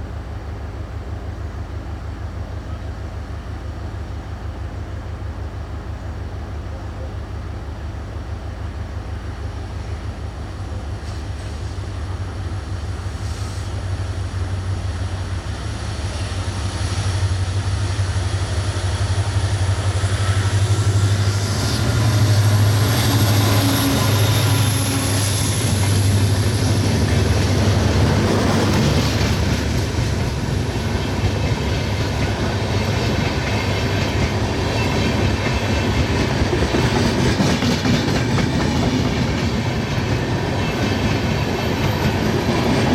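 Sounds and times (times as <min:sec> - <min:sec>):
high whine from wheels: 0:15.1 - 0:31.6
train wheels clattering over rail joints: 0:20.2 - 0:42.9.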